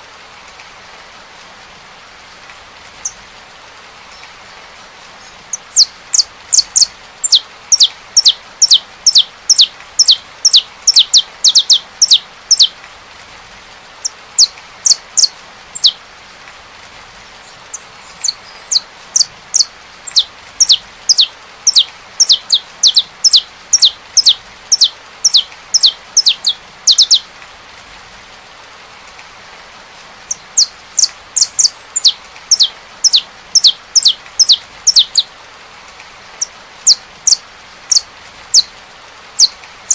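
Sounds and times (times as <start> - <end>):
rain hiss: 0.0 - 39.9
finch singing whistled notes: 5.5 - 12.7, 14.0 - 16.0, 17.7 - 27.2, 30.3 - 35.3, 36.4 - 38.7, 39.4 - 39.6.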